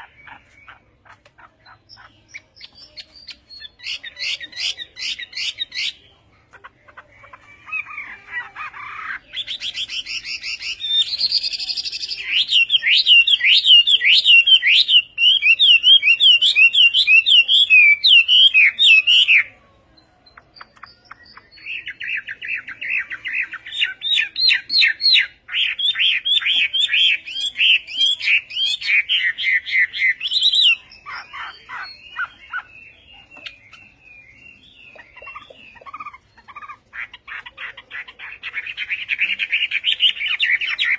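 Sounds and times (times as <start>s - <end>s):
bird singing whistled notes: 9.5s - 37.4s.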